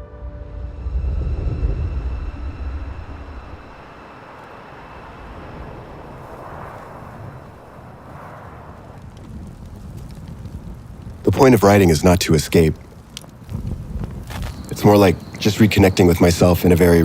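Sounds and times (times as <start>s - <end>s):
steady rushing noise: 0.8s - 17.0s
motorcycle rumbling past: 1.0s - 9.8s.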